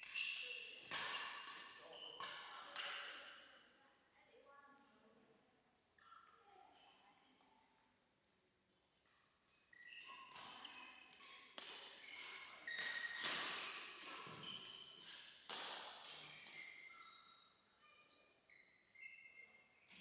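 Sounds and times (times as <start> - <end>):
shoes squeaking on court: 9.7 - 15.2.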